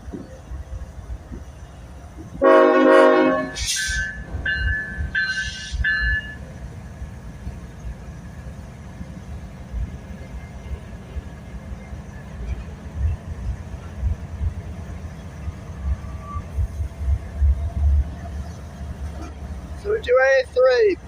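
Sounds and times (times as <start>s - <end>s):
train rumbling: 0.0s - 21.0s
locomotive air horn: 2.4s - 4.2s.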